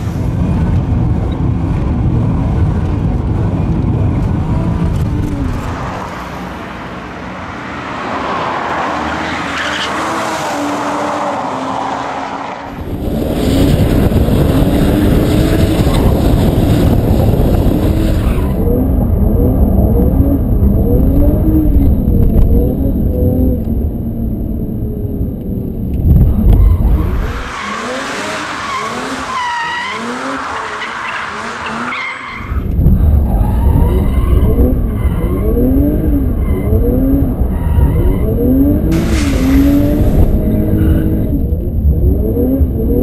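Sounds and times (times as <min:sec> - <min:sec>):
car engine revving hard: 0:12.8 - 0:23.5, 0:33.2 - 0:43.0.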